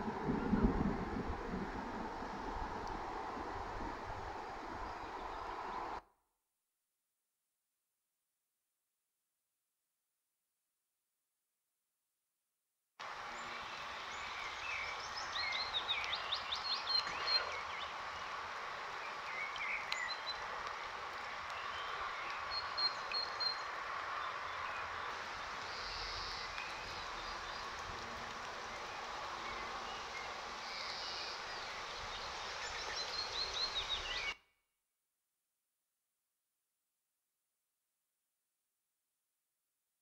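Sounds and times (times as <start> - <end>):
rain pattering on puddles: 0.0 - 6.0, 13.0 - 34.3
small birds chirping: 13.3 - 34.4.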